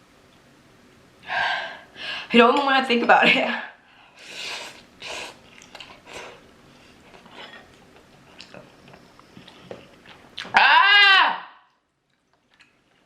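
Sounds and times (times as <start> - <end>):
person breathing heavily: 1.2 - 2.3
person chewing: 4.2 - 10.6, 12.0 - 13.0.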